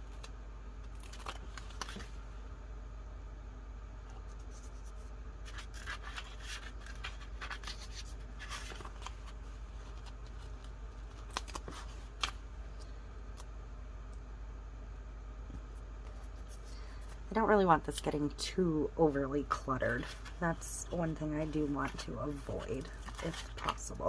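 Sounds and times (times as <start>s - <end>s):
steady low hum: 0.0s - 24.0s
paper rustling and crinkling: 0.9s - 2.2s, 4.3s - 12.4s, 19.5s - 24.0s.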